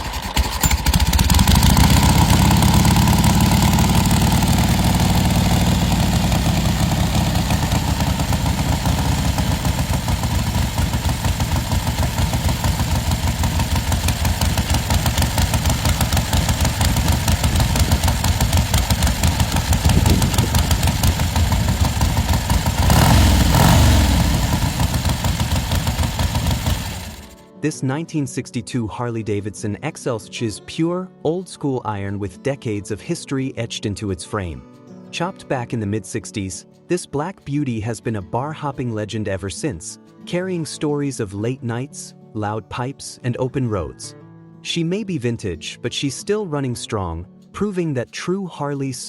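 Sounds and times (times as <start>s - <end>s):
motorcycle engine idling: 0.0s - 27.4s
motorcycle throttle rev: 0.0s - 27.4s.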